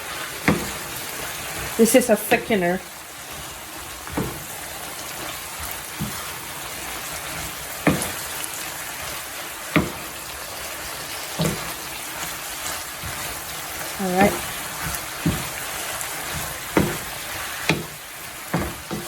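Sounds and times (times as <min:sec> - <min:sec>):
vegetables sizzling in a pan: 0:00.0 - 0:19.0
utensil knocking against pan: 0:00.4 - 0:00.8, 0:07.8 - 0:08.3, 0:09.7 - 0:10.2, 0:11.3 - 0:11.8, 0:14.2 - 0:15.6, 0:16.2 - 0:19.0.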